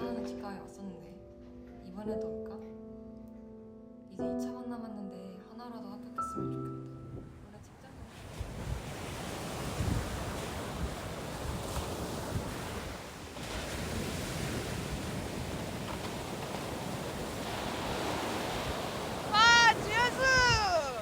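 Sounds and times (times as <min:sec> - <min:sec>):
sea waves washing in: 0:07.9 - 0:21.0
wind buffeting microphone: 0:08.0 - 0:21.0.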